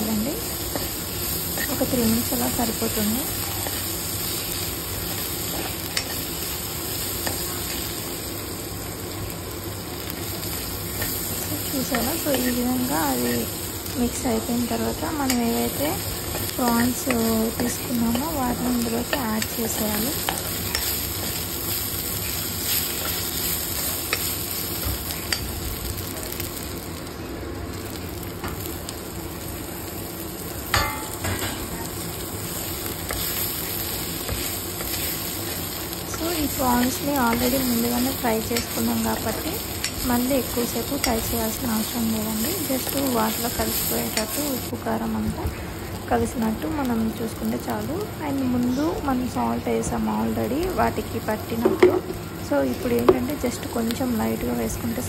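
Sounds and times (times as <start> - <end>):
onions sizzling in oil: 0.0 - 55.0
steel spoon stirring and scraping: 15.3 - 21.5, 33.0 - 36.1.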